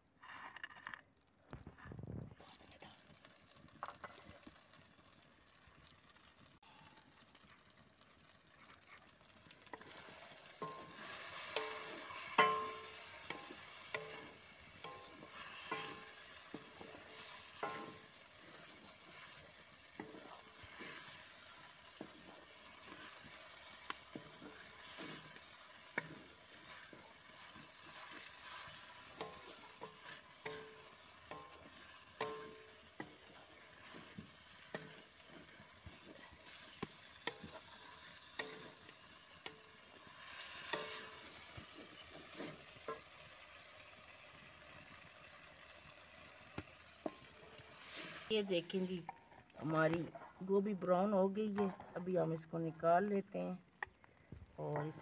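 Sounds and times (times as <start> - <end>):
vegetables sizzling in hot oil: 2.4 - 49.2
wooden spatula scraping a pan: 7.3 - 43.9, 46.9 - 48.3, 49.1 - 50.6
metal pan ringing: 10.6 - 16.2, 29.2 - 32.9.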